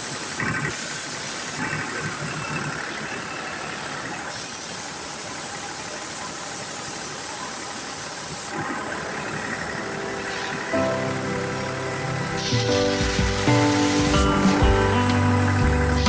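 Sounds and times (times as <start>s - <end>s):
continuous hiss: 0.0s - 16.0s
machine running steadily: 8.4s - 16.0s.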